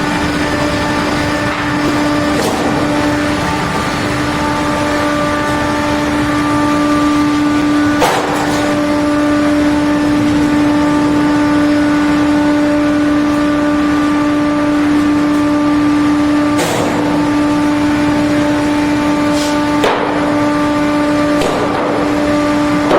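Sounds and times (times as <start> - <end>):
log sawing machine humming: 0.0 - 22.9.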